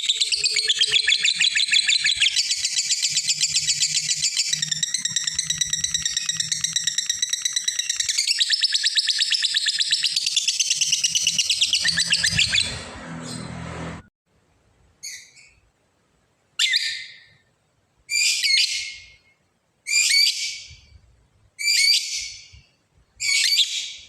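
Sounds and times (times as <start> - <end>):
lovebird chattering trill: 0.0 - 12.8.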